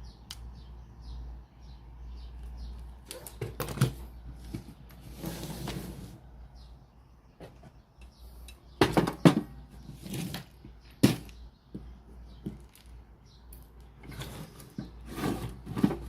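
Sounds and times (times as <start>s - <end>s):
objects knocking and clattering: 8.8s - 9.7s.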